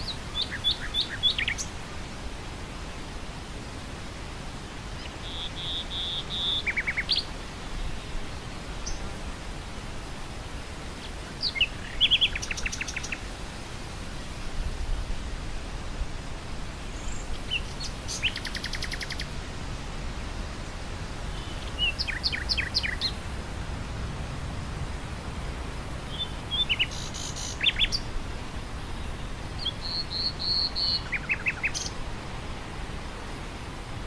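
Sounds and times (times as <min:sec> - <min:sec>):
nightingale singing: 0:00.0 - 0:01.8, 0:05.0 - 0:07.3, 0:11.4 - 0:13.2, 0:16.9 - 0:19.3, 0:21.3 - 0:23.2, 0:26.1 - 0:28.1, 0:29.0 - 0:32.0
low rush of wind: 0:00.0 - 0:34.0.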